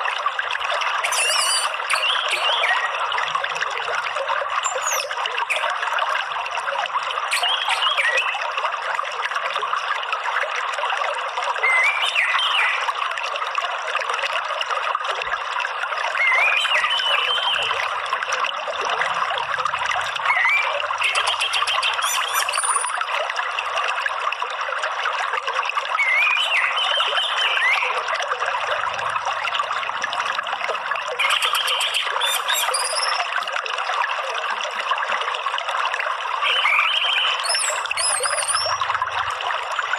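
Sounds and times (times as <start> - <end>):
trickling water: 0.0 - 39.9
short bird chirps: 1.0 - 2.2
higher bird calls: 1.0 - 2.8, 20.2 - 23.0, 31.2 - 33.3, 36.6 - 38.9.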